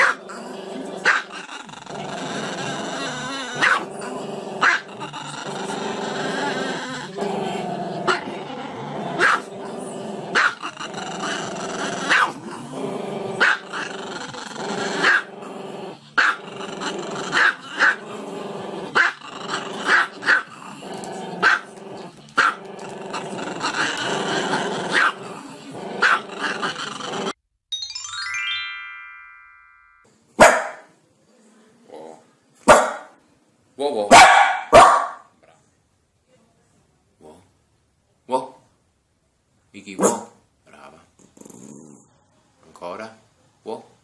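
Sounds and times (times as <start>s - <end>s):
dog growling: 0.0s - 27.4s, 40.7s - 42.2s
sharp dog bark: 30.4s - 30.9s, 32.7s - 33.1s, 34.1s - 35.3s, 40.0s - 40.4s.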